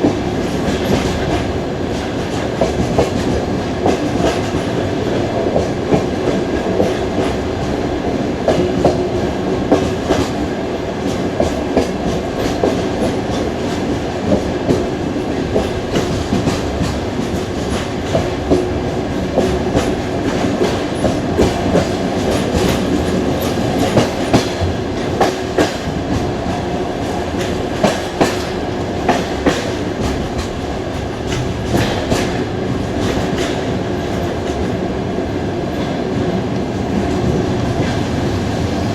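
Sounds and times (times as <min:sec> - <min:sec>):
train carriage rumble: 0:00.0 - 0:38.9
wheels clacking over rail joints: 0:09.6 - 0:34.8.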